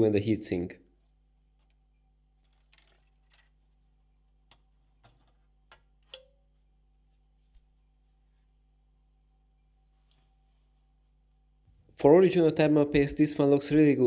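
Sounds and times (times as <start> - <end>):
small parts clicking and tapping: 1.5 - 3.8, 4.4 - 6.4.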